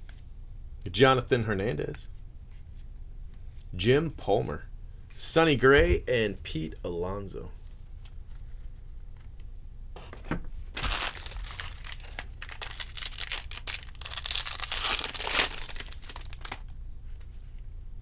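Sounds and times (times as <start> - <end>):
foil wrapper tearing and crinkling: 10.8 - 17.3.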